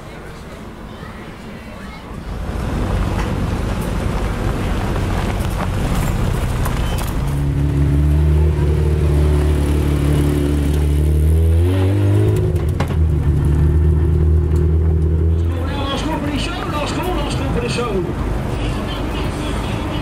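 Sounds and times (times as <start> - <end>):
rally car engine: 2.3 - 18.6
tyres on gravel: 2.4 - 7.6.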